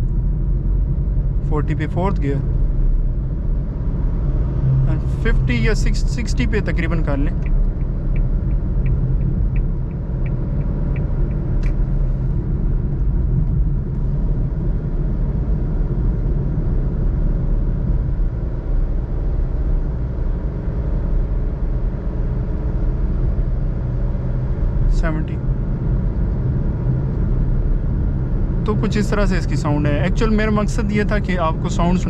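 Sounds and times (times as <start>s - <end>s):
car engine low drone: 0.0s - 32.0s
road noise: 0.0s - 32.0s
light even ticking: 5.7s - 11.8s.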